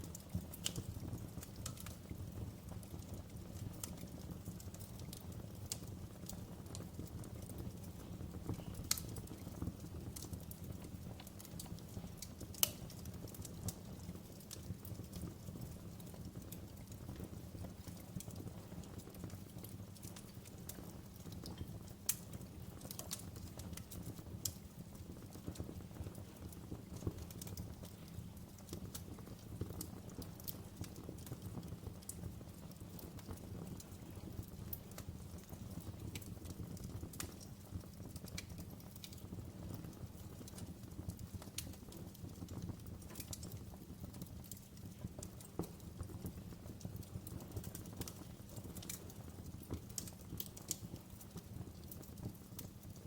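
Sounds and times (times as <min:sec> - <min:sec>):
low rumble of flames: 0:00.0 - 0:53.0
wood fire crackling: 0:00.0 - 0:53.0
sharp pops and snaps: 0:00.1 - 0:02.0, 0:08.5 - 0:10.6, 0:11.2 - 0:17.0, 0:19.6 - 0:24.7, 0:33.0 - 0:53.0.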